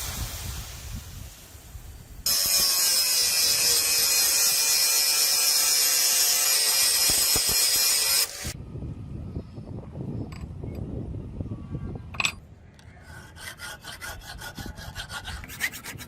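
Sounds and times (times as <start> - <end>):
power grinder grinding steel: 2.3 - 8.6.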